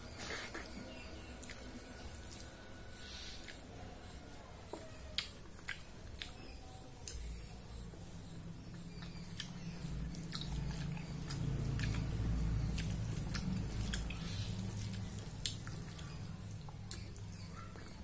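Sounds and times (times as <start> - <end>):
wet chewing and mouth clicks: 0.1 - 2.6, 3.4 - 18.0
fingers squishing food on plate: 3.4 - 7.8.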